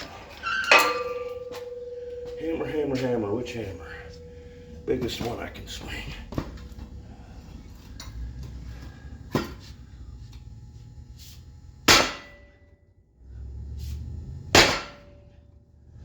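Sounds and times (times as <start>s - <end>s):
metal ringing: 0.1s - 7.1s, 11.9s - 12.7s, 14.5s - 15.4s
sledgehammer striking steel: 0.6s - 6.6s, 11.8s - 12.7s, 14.5s - 15.4s.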